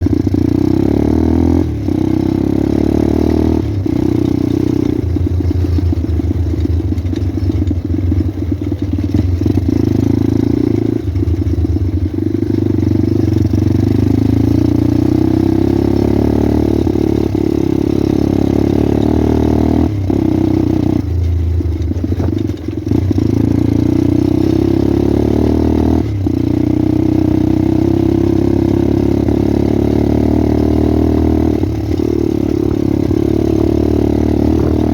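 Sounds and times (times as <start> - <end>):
pit bike engine revving: 0.0 - 21.2, 21.8 - 34.9.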